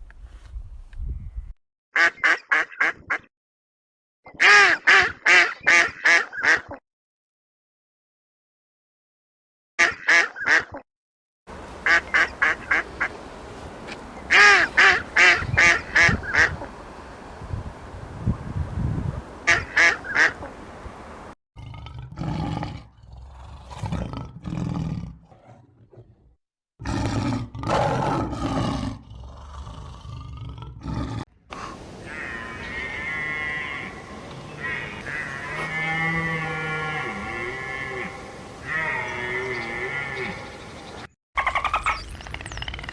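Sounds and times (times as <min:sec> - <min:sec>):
duck quacking: 0:04.4 - 0:06.8, 0:11.5 - 0:21.3, 0:32.0 - 0:35.8
low rough animal calls: 0:11.5 - 0:21.4, 0:29.6 - 0:40.6.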